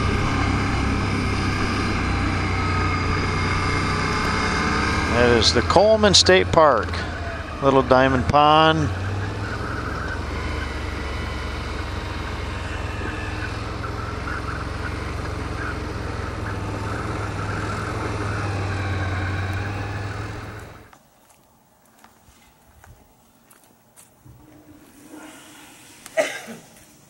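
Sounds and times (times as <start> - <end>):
atv engine running: 0.0 - 20.9.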